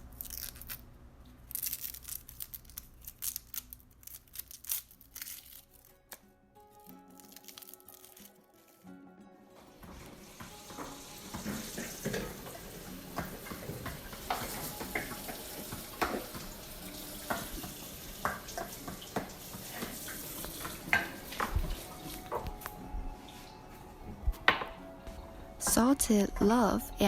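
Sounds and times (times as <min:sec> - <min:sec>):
tap water running into sink: 0:09.7 - 0:22.7.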